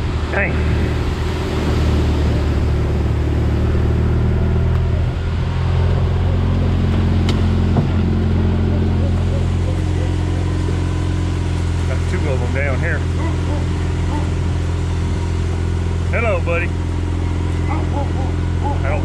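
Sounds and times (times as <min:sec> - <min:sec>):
vehicle engine driving: 0:00.0 - 0:19.0.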